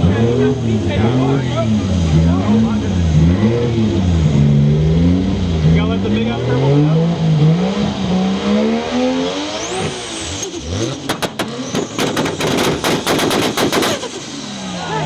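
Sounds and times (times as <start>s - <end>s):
exhaust pops and crackles: 10.8s - 14.5s.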